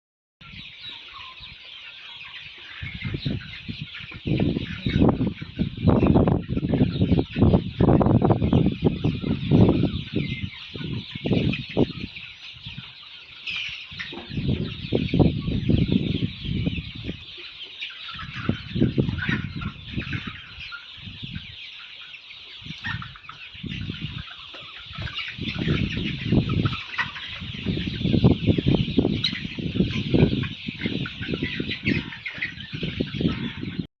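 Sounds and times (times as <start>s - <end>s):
chickens clucking and chirping: 0.4s - 33.9s.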